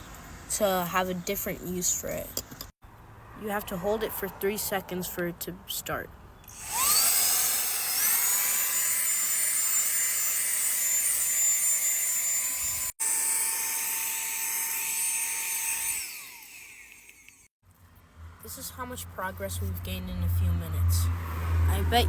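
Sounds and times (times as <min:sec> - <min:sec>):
vacuum motor winding down: 0:06.5 - 0:08.9, 0:12.6 - 0:17.5
handheld vacuum cleaner running: 0:06.6 - 0:09.2, 0:12.0 - 0:17.4.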